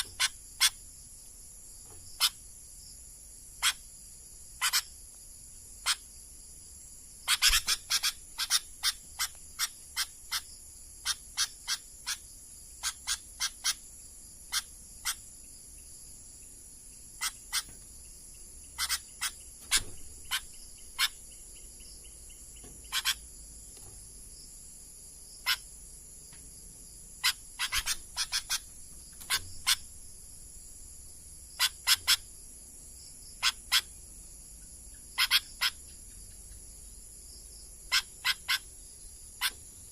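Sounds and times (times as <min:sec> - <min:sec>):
night insects droning: 0:00.0 - 0:39.9
bird sharp call notes: 0:07.3 - 0:10.5, 0:27.2 - 0:29.9.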